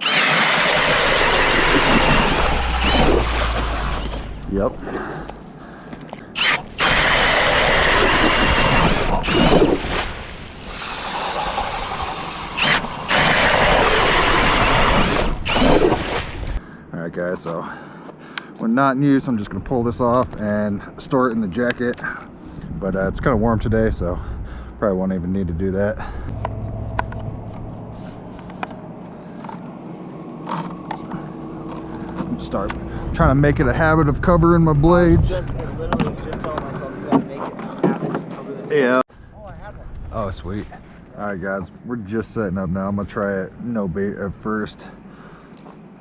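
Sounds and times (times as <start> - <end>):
drill auger grinding through ice: 0.0 - 4.4, 6.4 - 16.6
low steady hum: 0.9 - 10.8, 19.0 - 37.1.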